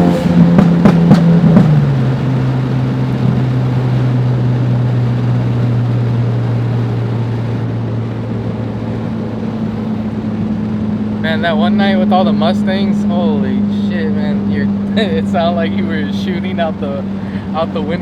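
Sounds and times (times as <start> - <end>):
exhaust pops: 0.0 - 6.7
car engine droning: 0.0 - 18.0.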